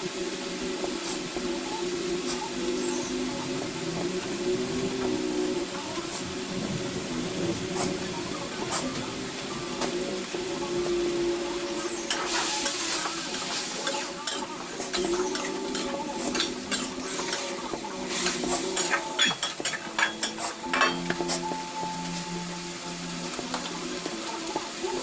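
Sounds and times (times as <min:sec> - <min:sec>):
hot oil sizzling: 0:00.0 - 0:25.0
metal spatula scraping a pan: 0:11.8 - 0:21.6.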